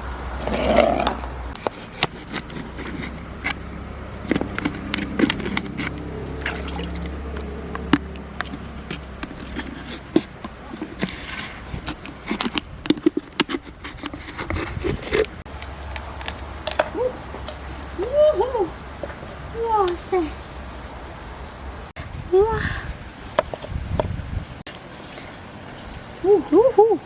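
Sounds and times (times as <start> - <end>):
water dripping: 3.2 - 11.2.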